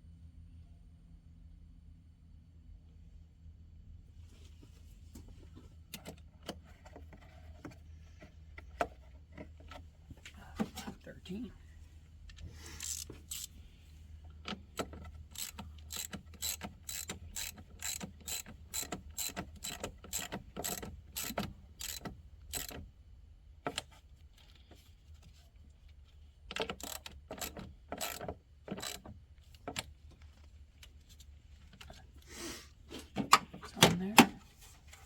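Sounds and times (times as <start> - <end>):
socket ratchet clicking: 12.8 - 13.6, 14.5 - 22.8, 26.5 - 29.1.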